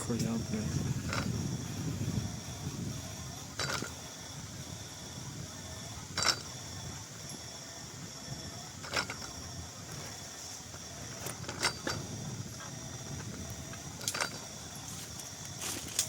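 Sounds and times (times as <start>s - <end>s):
steady low rumble: 0.0s - 16.0s
mechanical clacks: 0.1s - 1.6s, 3.5s - 4.1s, 6.1s - 6.7s, 8.8s - 16.0s.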